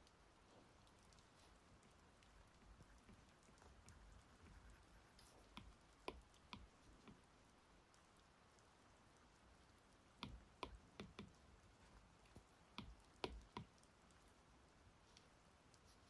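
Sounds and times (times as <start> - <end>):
stylus tapping glass screen: 10.2 - 11.4, 12.8 - 13.7.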